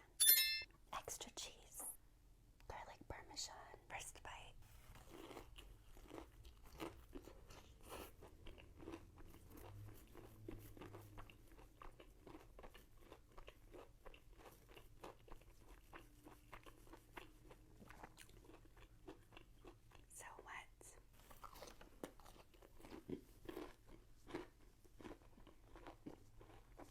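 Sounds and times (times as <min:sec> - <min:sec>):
person crunching food: 0:05.0 - 0:20.1, 0:21.2 - 0:26.9.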